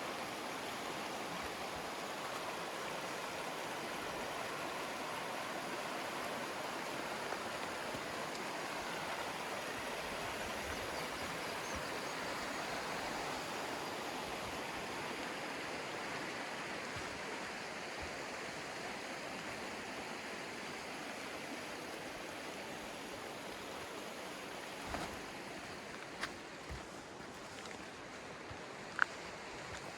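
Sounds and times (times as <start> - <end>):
river rushing over rocks: 0.0 - 27.1.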